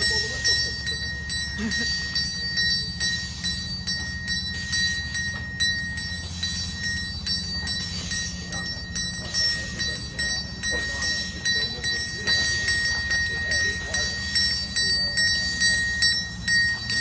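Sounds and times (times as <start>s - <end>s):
high-pitched whine: 0.0s - 17.0s
model steam locomotive running: 0.0s - 17.0s
rhythmic clatter: 0.0s - 17.0s.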